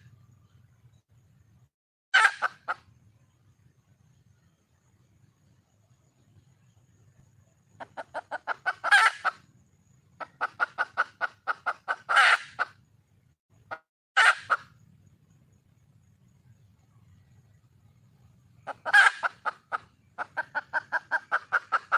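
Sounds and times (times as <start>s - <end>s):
hen clucking: 2.2s - 2.8s, 7.8s - 9.4s, 10.2s - 12.8s, 13.7s - 14.7s, 18.6s - 21.9s.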